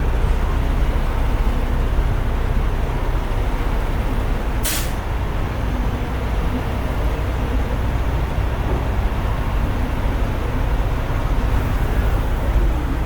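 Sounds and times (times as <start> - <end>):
diesel truck engines idling: 0.0 - 13.0
air brake hiss: 4.6 - 5.0.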